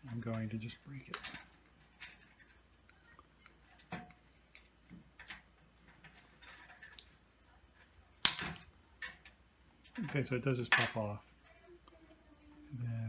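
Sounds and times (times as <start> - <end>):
brittle plastic clicking and scraping: 0.0 - 11.2
loud plastic snap: 8.2 - 8.6.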